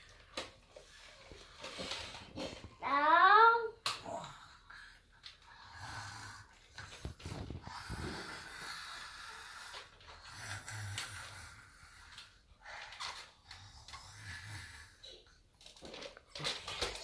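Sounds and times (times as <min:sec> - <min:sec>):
toy hissing breath noise: 0:05.6 - 0:15.2.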